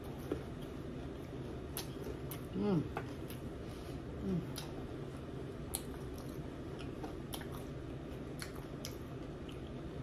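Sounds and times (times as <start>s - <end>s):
person chewing food: 0.0s - 10.0s
person humming mm: 2.5s - 3.0s, 4.2s - 4.7s.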